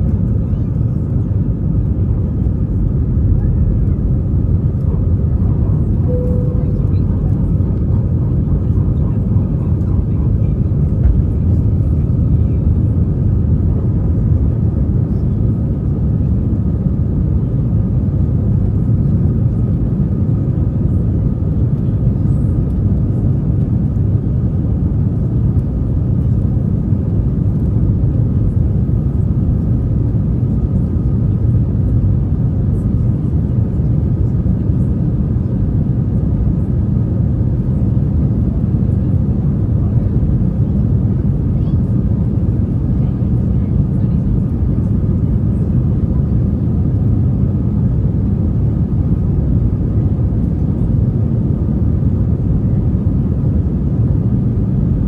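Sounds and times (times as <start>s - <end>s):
jet engine cabin rumble: 0.0s - 55.0s
faint steady whine: 4.8s - 10.0s.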